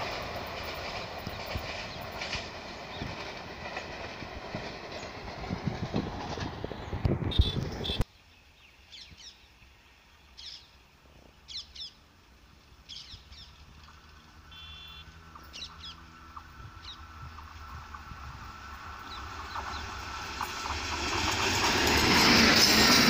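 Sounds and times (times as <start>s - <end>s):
train passing: 0.0s - 8.0s, 9.6s - 23.0s
distant electric locomotive hum: 0.0s - 23.0s
small birds chirping: 6.8s - 12.0s, 12.8s - 13.7s, 14.6s - 17.4s.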